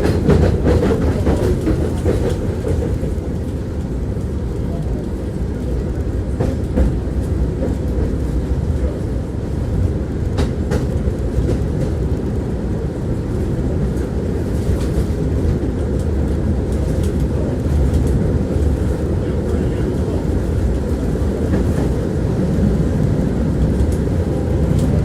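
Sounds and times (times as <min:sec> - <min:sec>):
wheels clicking over rail joints: 0:00.0 - 0:04.3
tram wheels rumbling on rails: 0:00.0 - 0:25.0.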